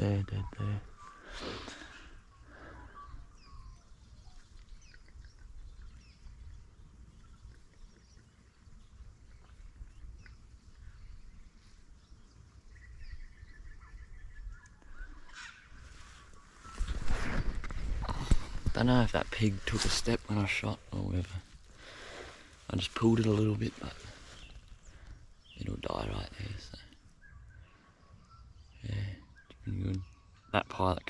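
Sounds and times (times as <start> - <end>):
faint bird calls: 0.0 - 31.0.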